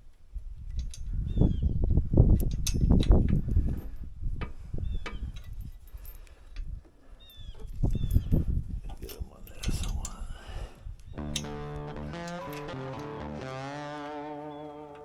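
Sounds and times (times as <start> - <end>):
small bird chirping: 7.2 - 8.6
knocks and clicks: 11.2 - 15.0.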